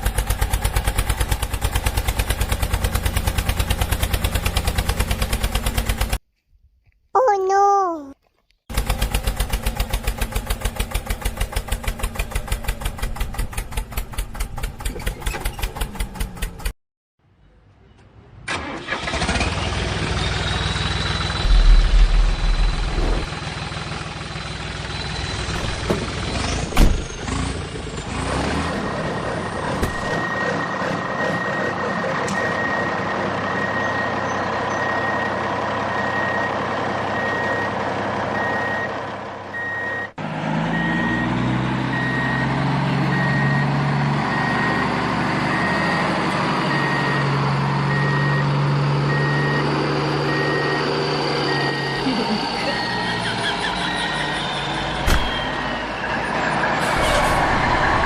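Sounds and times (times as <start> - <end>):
engine knock: 0.0 - 6.2, 8.7 - 16.7
engine starting and running: 0.0 - 6.2, 8.7 - 16.8, 18.4 - 58.0.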